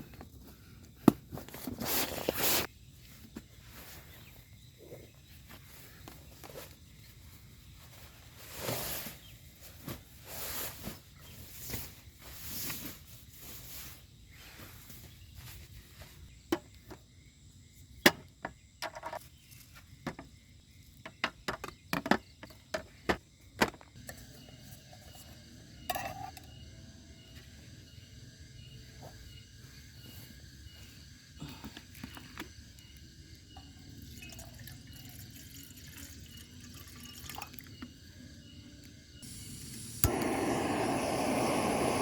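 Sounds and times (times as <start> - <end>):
faint night ambience: 0.0 - 42.0.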